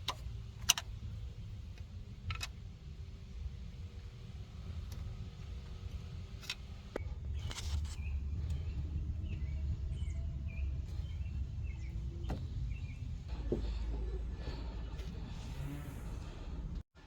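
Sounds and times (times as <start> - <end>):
hand tools clicking on engine parts: 0.0 - 2.6
low background rumble: 0.0 - 17.0.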